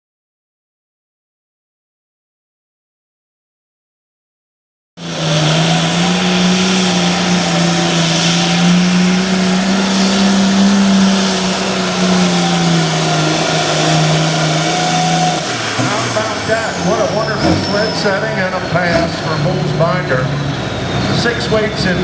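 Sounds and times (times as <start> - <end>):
diesel tractor engine under load: 5.0 - 22.0.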